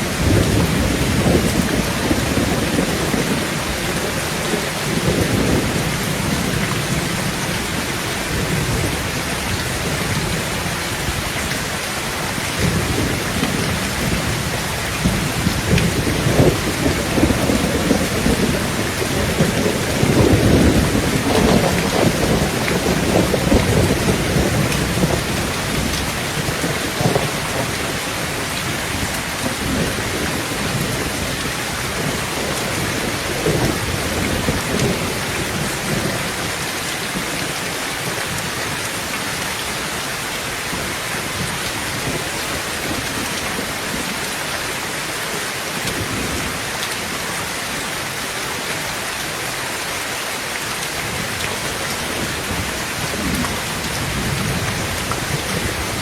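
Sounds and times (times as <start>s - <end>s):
low rolling thunder: 0.0s - 11.4s, 12.6s - 39.1s, 51.0s - 56.0s
rain on a tin roof: 0.0s - 56.0s.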